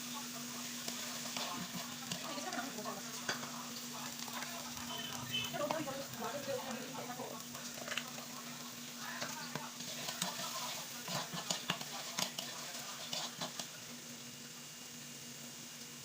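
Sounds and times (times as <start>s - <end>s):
food sizzling in a pan: 0.0s - 16.0s
utensil scraping a pan: 9.2s - 13.7s.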